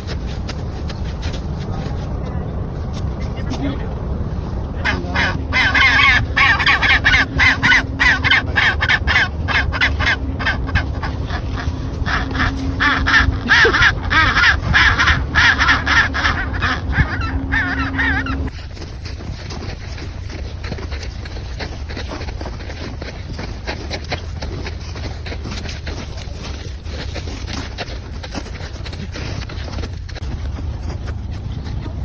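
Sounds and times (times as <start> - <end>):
steady low hum: 0.0 - 32.0
penguins squawking: 3.2 - 18.5.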